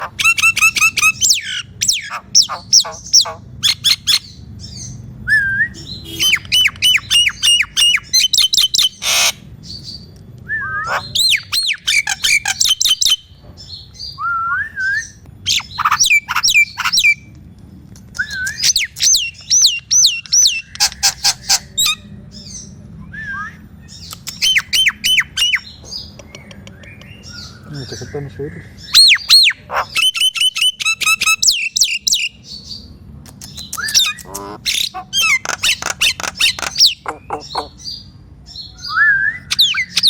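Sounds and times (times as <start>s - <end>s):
harsh bird squawk: 0.0s - 4.9s, 5.7s - 10.0s, 10.7s - 13.3s, 15.4s - 17.2s, 18.2s - 22.6s, 27.2s - 32.6s, 33.5s - 38.1s, 38.8s - 40.0s
myna bird calling: 0.0s - 5.0s, 5.7s - 10.1s, 10.8s - 14.2s, 15.0s - 17.3s, 18.0s - 22.8s, 23.8s - 40.0s.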